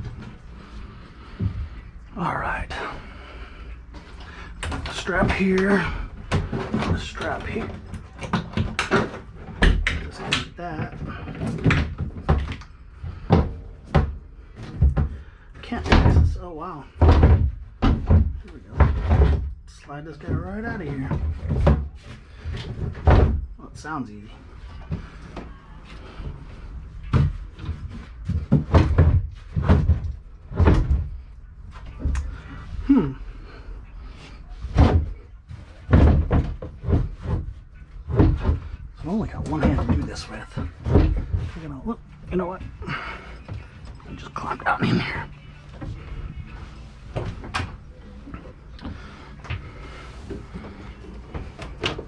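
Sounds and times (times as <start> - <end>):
heavy thuds and scraping bumps: 0.0 - 52.0
knocks and scuffs in boat hull: 34.0 - 52.0.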